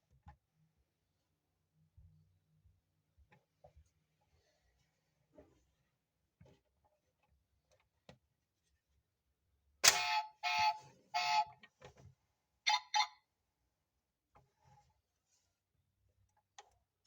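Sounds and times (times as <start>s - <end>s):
toy buzzy beeps: 9.8s - 11.5s, 12.7s - 13.2s.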